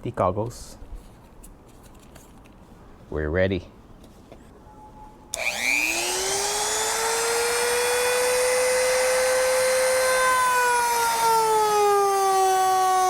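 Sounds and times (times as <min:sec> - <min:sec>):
rotary tool motor whine: 0:05.3 - 0:13.0.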